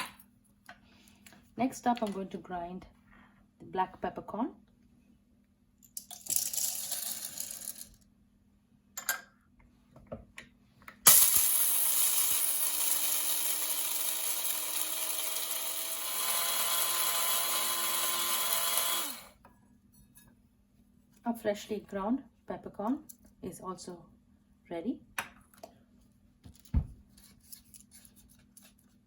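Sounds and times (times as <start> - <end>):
coffee grinder motor grinding: 11.1 - 19.4.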